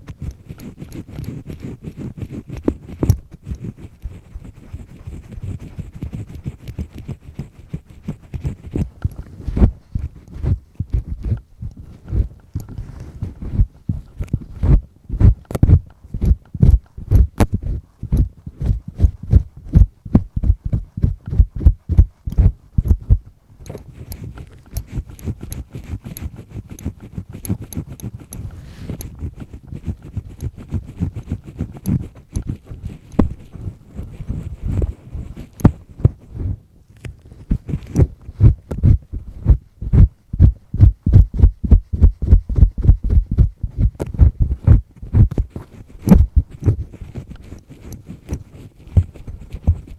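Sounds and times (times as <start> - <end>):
earpick scraping inside ear: 0.0 - 49.9
heavy thumps: 33.2 - 33.7, 38.0 - 46.8.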